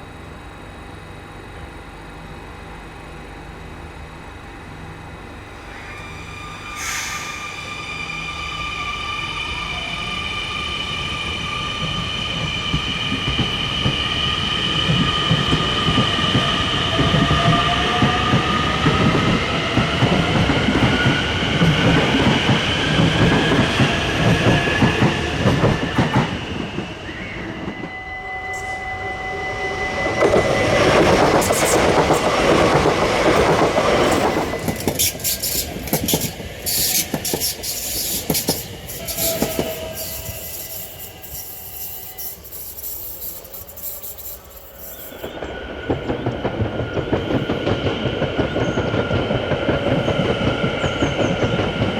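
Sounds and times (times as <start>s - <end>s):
train passing rush: 5.4s - 51.9s
wheel and rail rumble: 28.6s - 51.9s.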